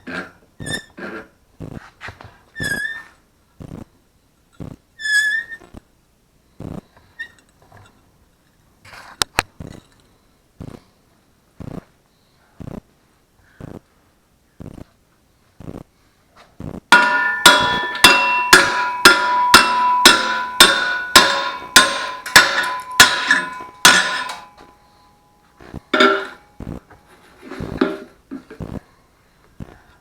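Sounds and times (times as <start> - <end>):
hammer striking steel plate: 16.9 - 24.8, 25.9 - 26.6.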